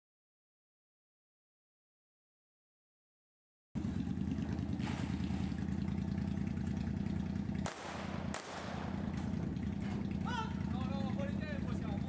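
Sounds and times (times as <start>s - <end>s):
motorcycle engine idling: 3.8s - 12.0s.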